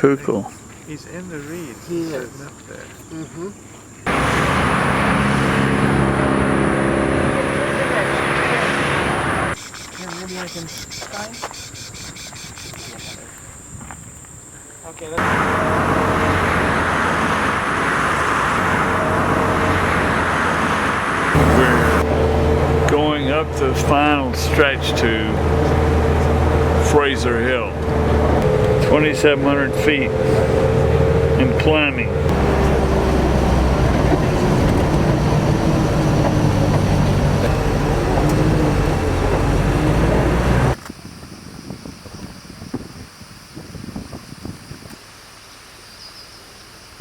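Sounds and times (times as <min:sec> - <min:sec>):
faint outdoor wind: 0:00.0 - 0:47.0
vehicle road and engine noise: 0:00.6 - 0:11.7, 0:15.0 - 0:40.9.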